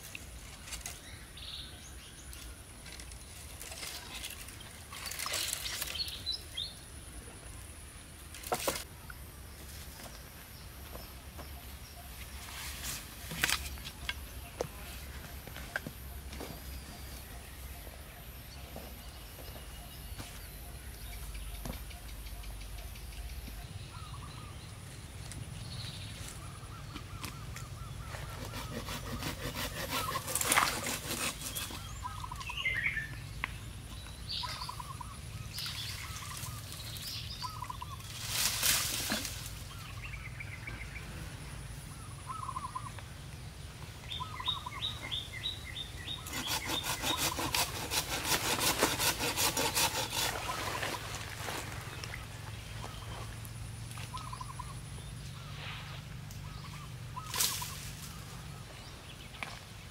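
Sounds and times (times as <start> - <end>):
birds chirping: 8.8 - 59.9
hand saw cutting wood: 28.2 - 32.0, 46.2 - 51.0.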